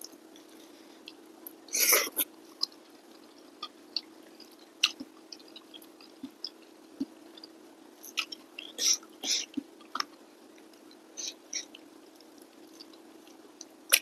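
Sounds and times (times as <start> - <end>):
close-miked chewing: 0.1 - 14.0
wet mouth clicks and smacks: 4.0 - 7.5.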